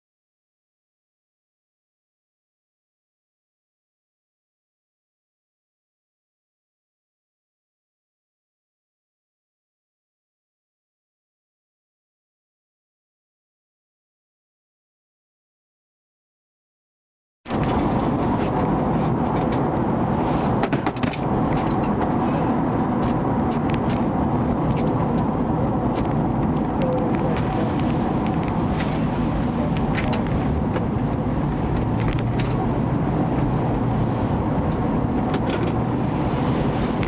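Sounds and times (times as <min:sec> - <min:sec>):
car road and engine noise: 0:17.5 - 0:37.0.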